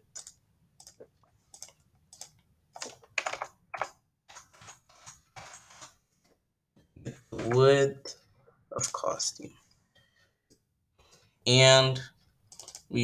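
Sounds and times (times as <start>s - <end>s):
computer keyboard typing: 0.0s - 3.9s, 12.5s - 13.0s.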